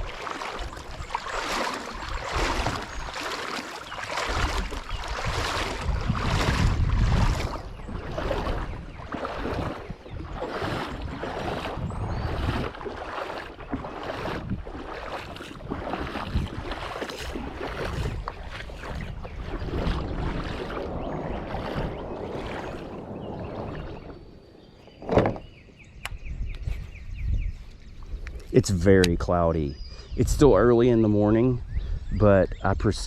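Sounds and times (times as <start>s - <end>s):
river water splashing: 0.0s - 25.6s
wind: 0.0s - 33.0s.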